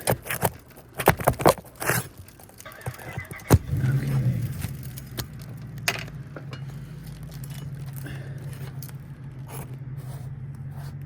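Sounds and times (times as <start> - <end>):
pry tool scraping shingles: 0.0 - 11.0
steady low hum: 3.1 - 11.0.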